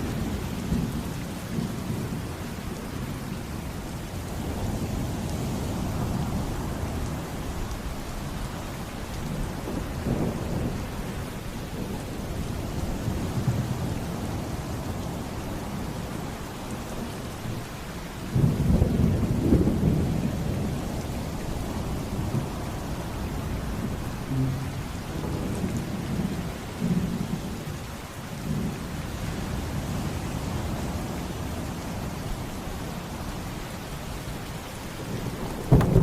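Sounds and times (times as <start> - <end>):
steady rain: 0.0 - 36.0
low rolling thunder: 4.3 - 17.7, 18.3 - 27.5, 34.9 - 36.0.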